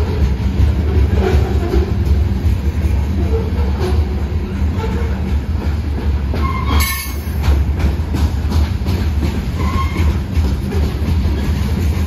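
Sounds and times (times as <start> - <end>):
freight train rumbling past: 0.0 - 12.0
wheels clattering over rails: 0.0 - 12.0
high wheel squeal: 6.4 - 7.4, 9.6 - 10.2.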